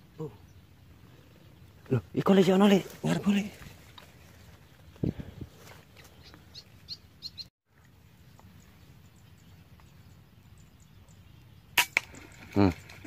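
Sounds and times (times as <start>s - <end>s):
small birds chirping: 0.0s - 13.0s
sharp cracks: 11.8s - 12.3s.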